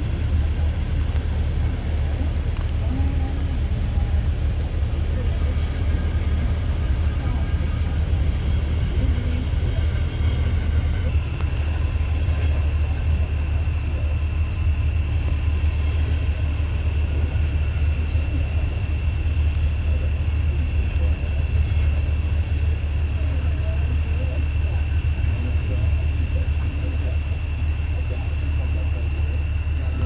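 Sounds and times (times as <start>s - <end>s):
train rumbling past: 0.0s - 30.0s.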